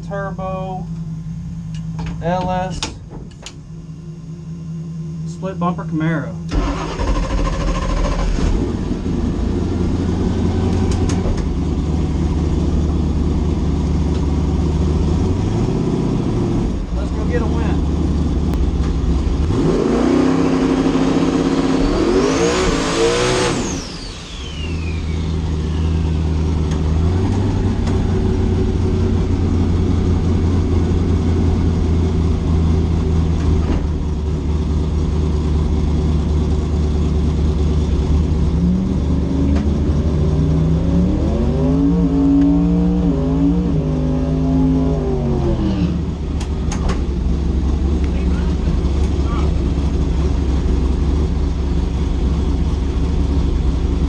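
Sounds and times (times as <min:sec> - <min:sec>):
car engine accelerating hard: 0:06.5 - 0:54.0
high turbo whistle: 0:21.7 - 0:26.5.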